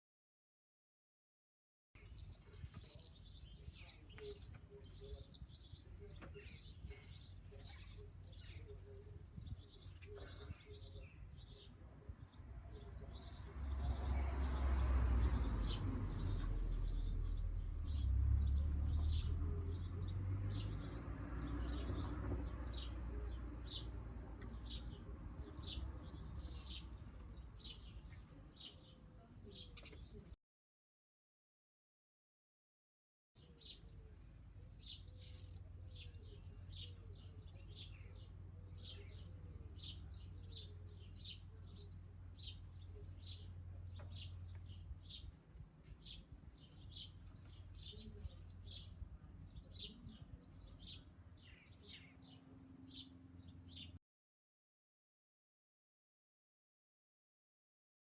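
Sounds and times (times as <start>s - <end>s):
swifts screaming: 2.0s - 8.7s, 26.3s - 28.5s, 35.0s - 38.3s.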